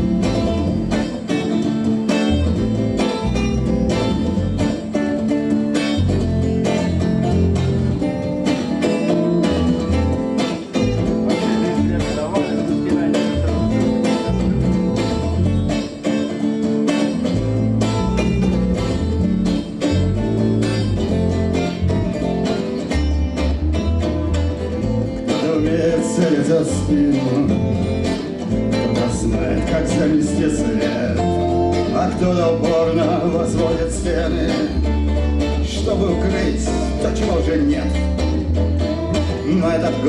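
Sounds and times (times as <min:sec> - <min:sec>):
acoustic guitar strumming: 0:00.0 - 0:40.0.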